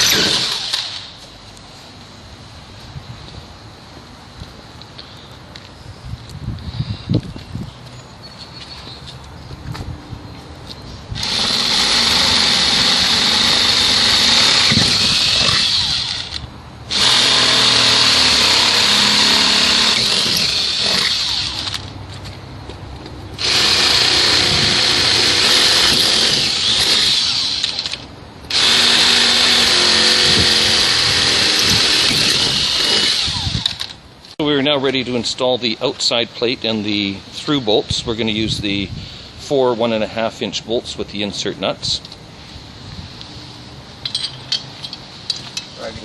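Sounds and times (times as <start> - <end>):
cordless drill drilling steel: 0.0 - 1.1, 11.2 - 21.9, 23.4 - 34.0.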